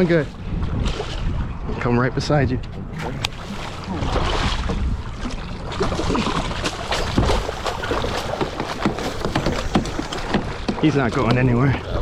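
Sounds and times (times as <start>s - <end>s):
water splashing beside a boat: 0.0s - 12.0s
sharp knocks: 7.0s - 11.0s.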